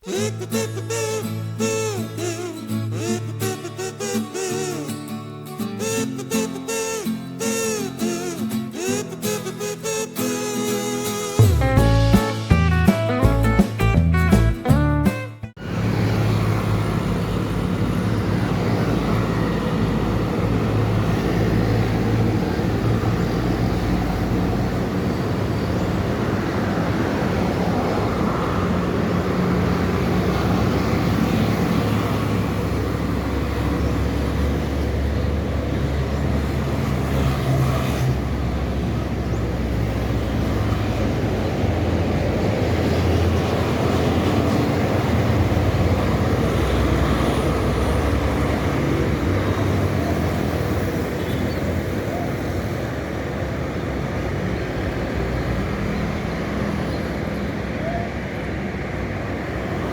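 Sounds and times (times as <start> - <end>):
highway traffic rumble: 15.5 - 59.9.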